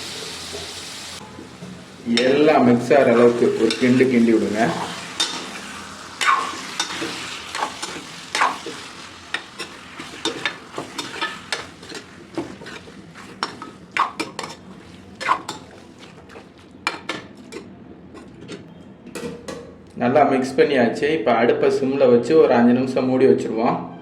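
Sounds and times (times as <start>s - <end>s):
hot oil sizzling: 0.0s - 17.0s
spoon scraping and clacking in pan: 3.0s - 19.6s.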